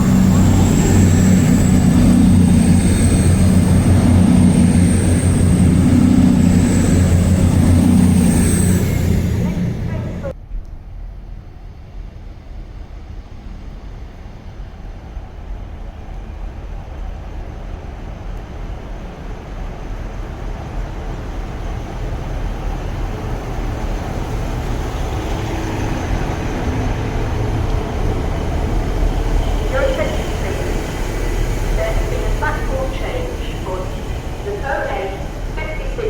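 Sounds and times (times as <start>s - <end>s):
steady hum: 0.0s - 10.3s, 24.7s - 36.0s
train rumble: 0.0s - 36.0s.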